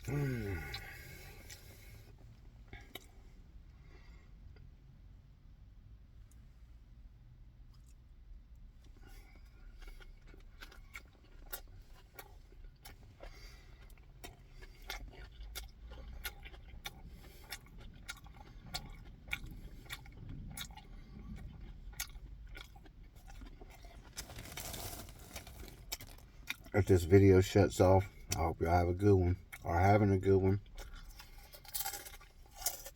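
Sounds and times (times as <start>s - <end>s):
wet mouth chewing: 9.4s - 26.8s, 29.4s - 32.9s.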